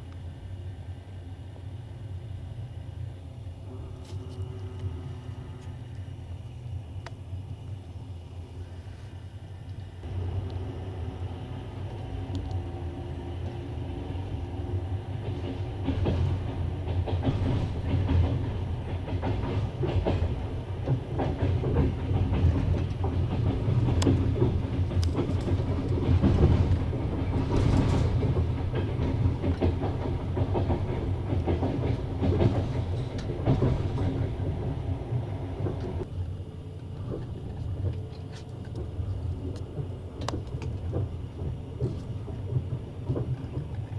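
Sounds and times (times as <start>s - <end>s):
train low rumble: 0.0s - 43.9s
clickety-clack of train wheels: 9.6s - 43.9s.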